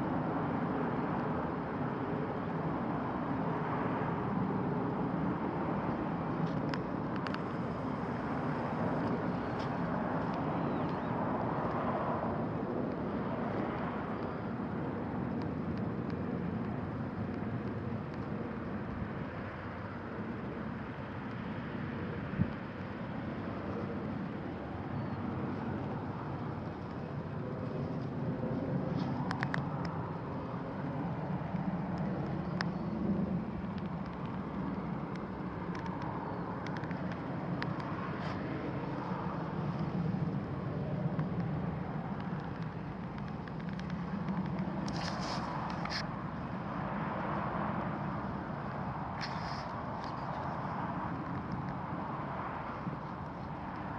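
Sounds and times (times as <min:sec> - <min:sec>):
distant road traffic: 0:00.0 - 0:53.9
faint sharp ticks: 0:06.4 - 0:07.6, 0:15.3 - 0:19.0, 0:29.0 - 0:30.0, 0:31.5 - 0:32.8, 0:33.6 - 0:39.1, 0:41.1 - 0:46.1.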